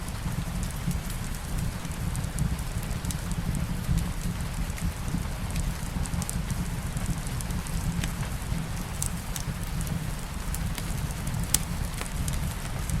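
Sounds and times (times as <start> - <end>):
light rain hiss: 4.4 - 13.0
wood fire crackling: 5.2 - 13.0.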